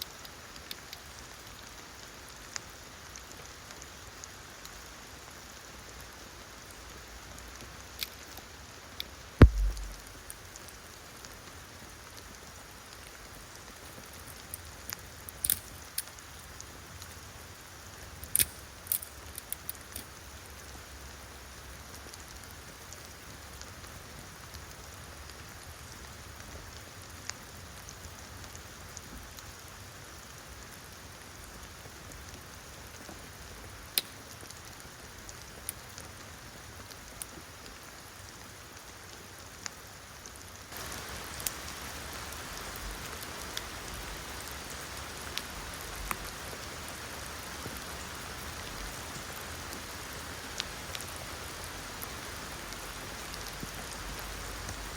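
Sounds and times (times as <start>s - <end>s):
steady rain: 0.0s - 54.9s
drops ticking: 9.4s - 10.2s.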